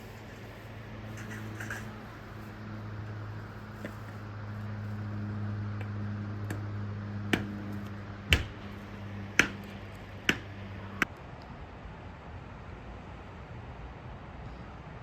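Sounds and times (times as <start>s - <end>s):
low steady hum: 0.0s - 15.0s
sharp knocks: 7.3s - 10.6s.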